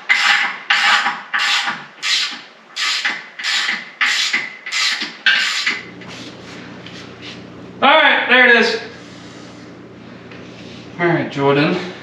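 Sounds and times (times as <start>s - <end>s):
hand tool rasping strokes: 0.0s - 6.3s.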